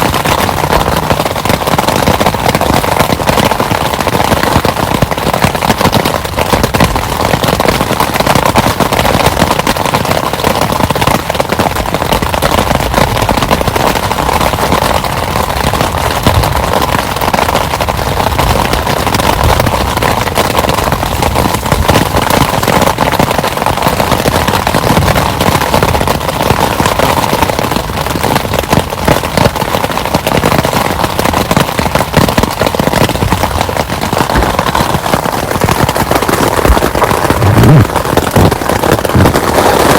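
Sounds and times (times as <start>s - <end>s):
heavy rain crackling: 0.0s - 39.9s.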